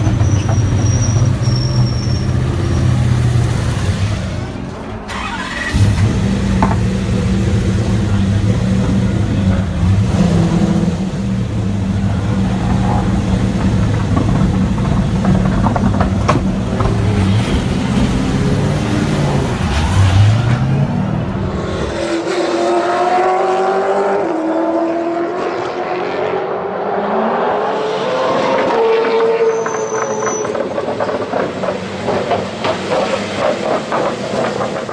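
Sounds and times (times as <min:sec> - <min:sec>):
race car engine running: 0:02.5 - 0:22.0.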